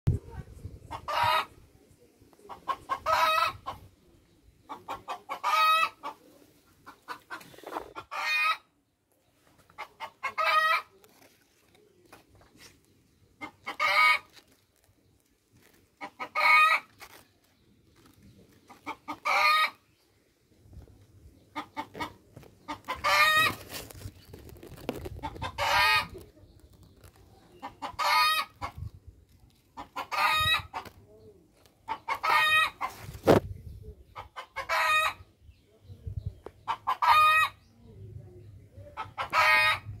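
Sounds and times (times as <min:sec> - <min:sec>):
phone rustling among leaves: 0:11.0 - 0:13.0, 0:14.0 - 0:19.0, 0:21.9 - 0:27.6.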